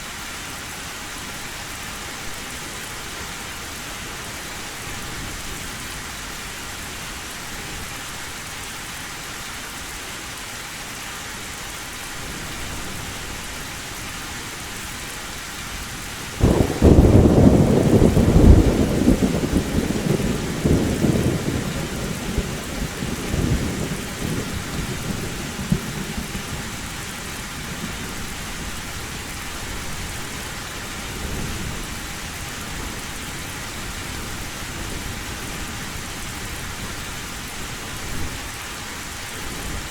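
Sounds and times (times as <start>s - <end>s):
heavy rain on a metal roof: 0.0s - 39.9s
thunderclap rumbling: 16.4s - 28.4s.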